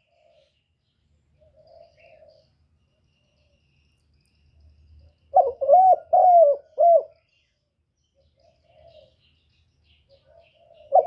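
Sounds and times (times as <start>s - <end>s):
bird cooing: 0.0s - 0.6s, 1.4s - 2.5s, 5.3s - 7.3s, 8.2s - 9.3s, 10.1s - 11.0s.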